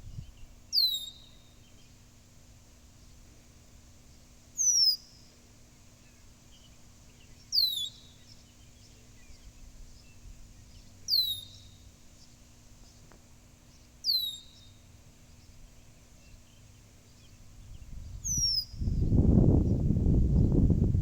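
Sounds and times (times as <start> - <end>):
blackbird whistles: 0.8 - 1.4, 4.6 - 5.2, 7.5 - 8.2, 11.1 - 11.8, 14.1 - 14.8, 18.2 - 18.9.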